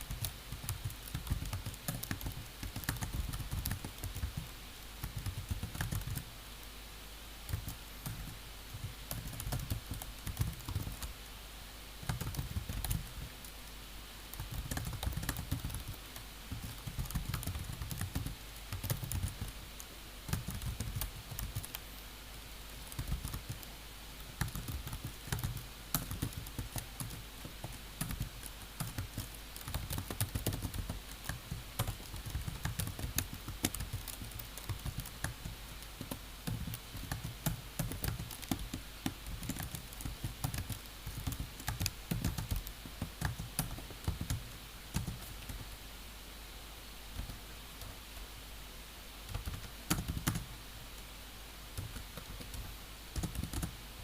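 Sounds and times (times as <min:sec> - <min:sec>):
low steady hum: 0:00.0 - 0:54.0
keyboard typing clicks: 0:49.3 - 0:50.5, 0:53.2 - 0:53.7.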